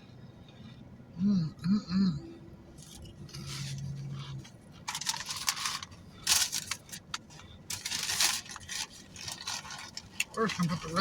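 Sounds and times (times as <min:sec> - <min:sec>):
food packaging crinkling: 0:04.8 - 0:11.0.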